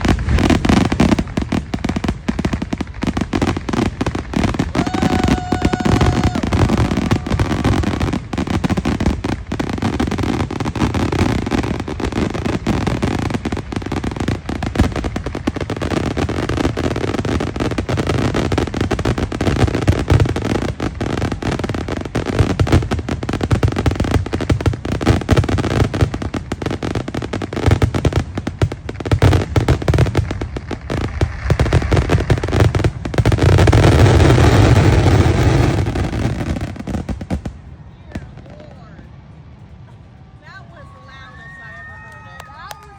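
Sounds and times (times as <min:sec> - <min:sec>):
fireworks bangs: 0:00.0 - 0:42.9
firework whistle: 0:04.4 - 0:08.9.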